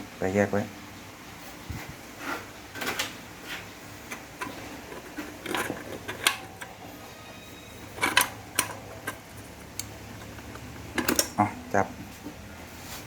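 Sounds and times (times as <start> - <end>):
metal parts clicking and clunking: 4.0 - 11.6.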